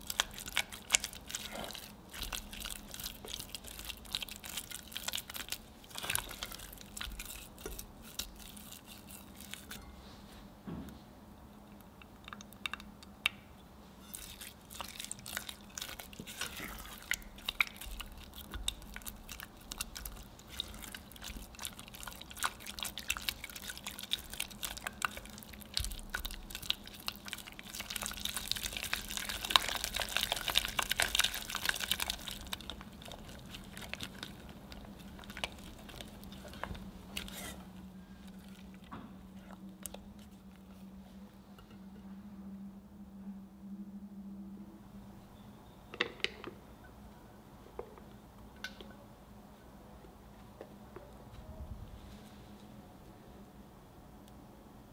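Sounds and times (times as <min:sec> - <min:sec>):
spatula squelching sticky dough: 0:00.0 - 0:09.8, 0:14.0 - 0:40.6
faint steady hum: 0:00.0 - 0:54.9.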